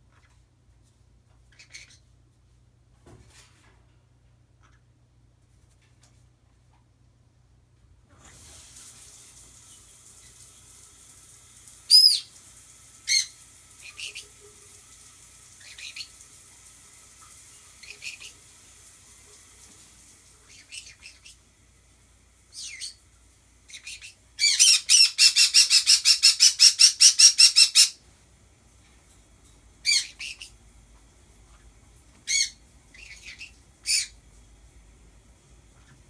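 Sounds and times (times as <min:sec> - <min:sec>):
pet birds squawking: 0:01.5 - 0:02.0, 0:11.9 - 0:12.3, 0:22.5 - 0:23.0, 0:23.7 - 0:28.0, 0:29.8 - 0:30.6, 0:32.2 - 0:34.2
faint running shower: 0:07.6 - 0:36.0.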